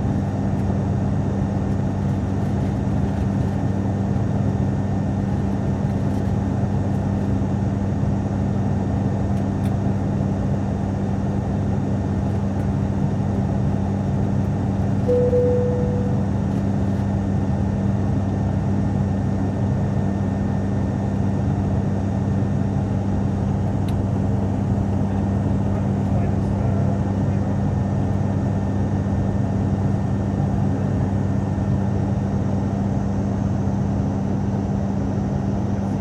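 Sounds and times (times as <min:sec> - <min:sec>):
airliner cabin drone: 0:08.6 - 0:36.0
cabin chime: 0:15.1 - 0:16.5.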